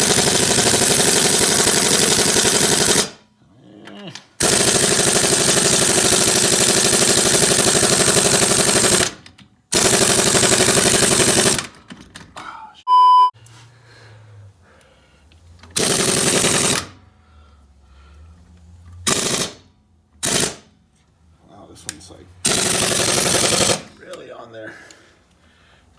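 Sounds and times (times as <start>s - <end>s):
pneumatic impact wrench hammering: 0.0s - 3.2s, 4.4s - 11.8s, 15.8s - 16.9s, 19.0s - 20.7s, 22.4s - 23.9s
loud high beep: 12.9s - 13.4s.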